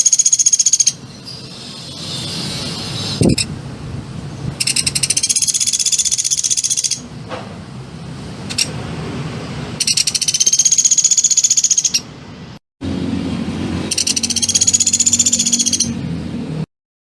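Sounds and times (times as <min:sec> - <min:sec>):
songbird high trill: 0:00.0 - 0:03.5, 0:04.6 - 0:07.1, 0:09.8 - 0:12.0, 0:13.9 - 0:16.0.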